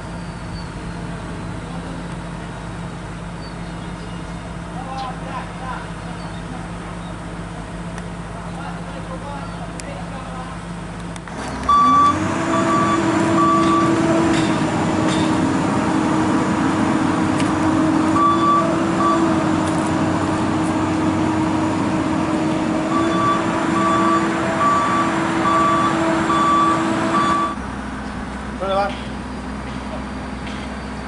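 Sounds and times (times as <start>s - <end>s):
excavator engine droning: 0.0s - 31.0s
travel alarm beeping: 11.7s - 14.1s, 18.2s - 19.4s, 22.9s - 27.6s.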